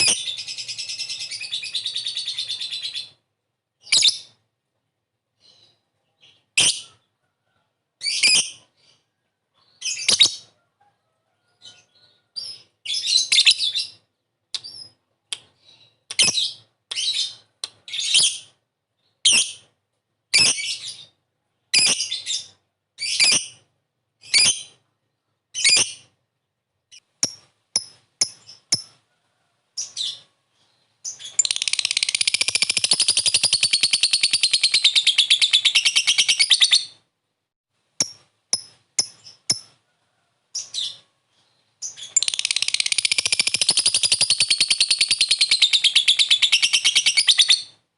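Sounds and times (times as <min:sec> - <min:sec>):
lovebird chirping: 0:00.0 - 0:03.2, 0:03.8 - 0:04.4, 0:08.0 - 0:09.0, 0:09.6 - 0:10.5, 0:11.6 - 0:15.0, 0:20.3 - 0:26.1, 0:26.9 - 0:29.0, 0:29.8 - 0:37.0, 0:38.0 - 0:39.8, 0:40.6 - 0:47.8
lovebird chattering trill: 0:31.1 - 0:36.9, 0:41.8 - 0:47.7.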